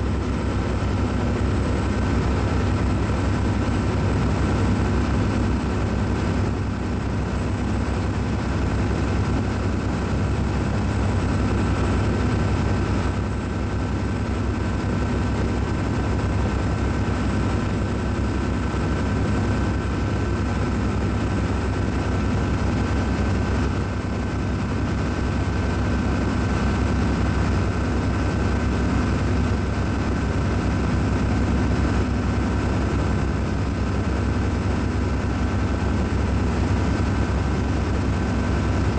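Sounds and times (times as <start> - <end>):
low machinery drone: 0.0 - 38.9.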